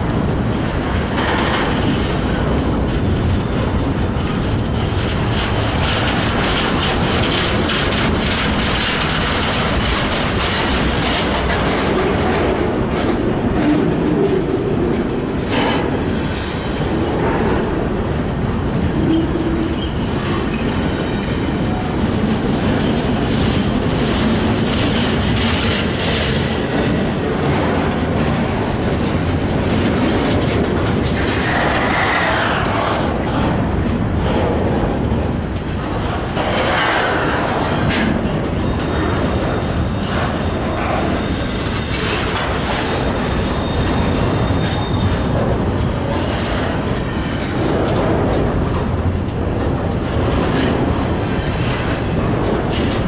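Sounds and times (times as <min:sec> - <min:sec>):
steel wheels rumbling on rail: 0:00.0 - 0:53.0
wheel clicks and clatter: 0:00.6 - 0:13.3, 0:19.0 - 0:53.0.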